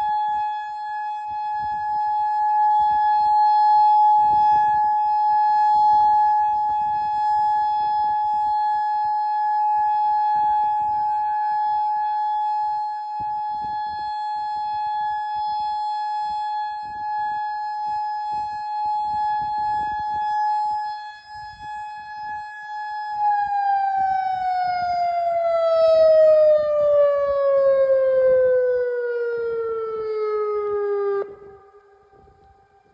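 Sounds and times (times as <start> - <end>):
warning siren: 0.0 - 32.9.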